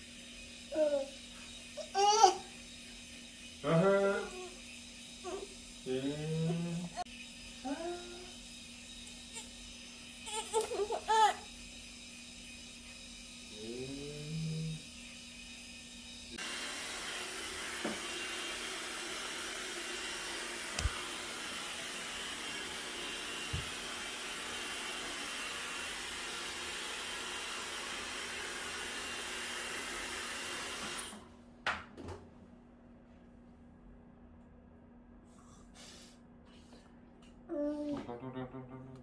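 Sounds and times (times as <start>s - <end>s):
hair dryer blowing: 15.9s - 31.2s.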